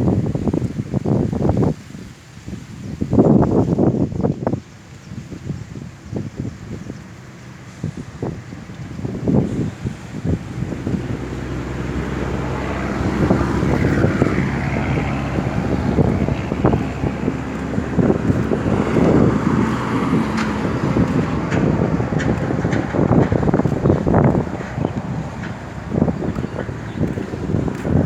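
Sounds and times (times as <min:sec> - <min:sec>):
wind buffeting microphone: 0:00.0 - 0:28.0
vehicle engine running: 0:07.2 - 0:28.0.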